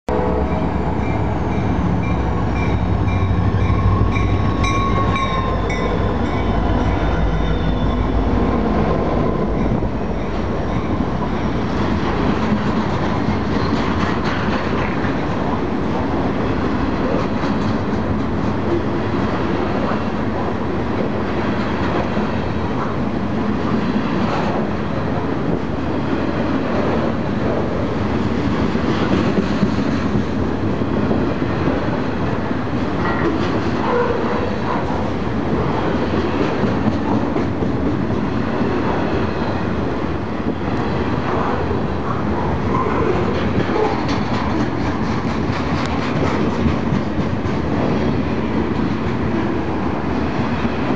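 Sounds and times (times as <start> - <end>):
train wheels rumbling on rails: 0.1 - 50.9
clatter over track joints: 42.8 - 49.3.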